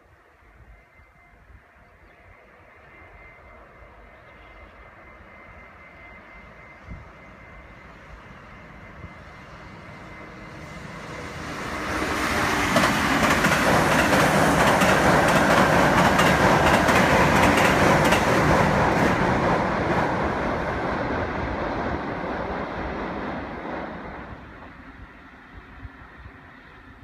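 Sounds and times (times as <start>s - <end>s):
train wheels rumbling on bridge: 7.0s - 24.7s.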